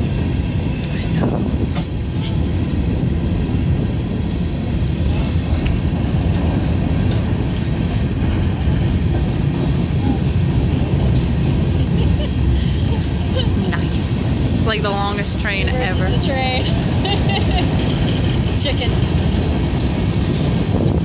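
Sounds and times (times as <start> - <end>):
freight train rumbling past: 0.0 - 21.0
faint high wheel squeals: 5.0 - 5.8.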